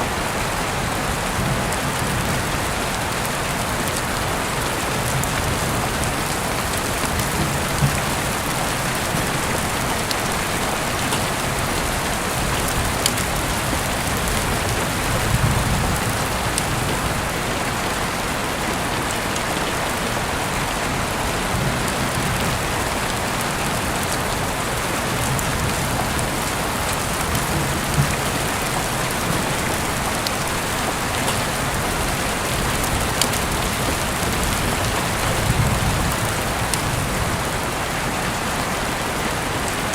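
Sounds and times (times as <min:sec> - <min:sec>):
heavy rain falling: 0:00.0 - 0:39.9
sharp raindrop ticks: 0:03.1 - 0:17.4, 0:25.1 - 0:37.5.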